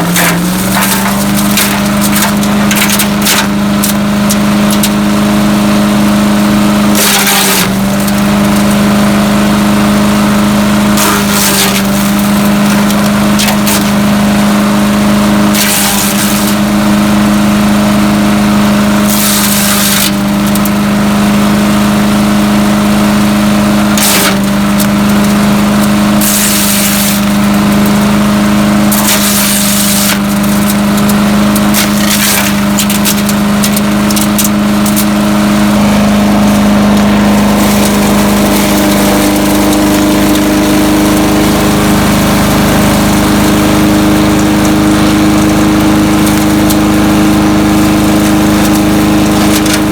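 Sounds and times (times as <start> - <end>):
chipper shredder engine running: 0.0 - 49.9
material going through chipper: 0.0 - 49.9.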